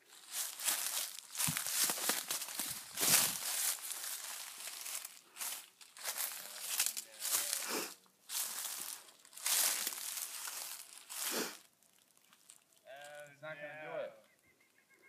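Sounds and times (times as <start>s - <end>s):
footsteps crunching dry leaves: 0.0s - 12.9s.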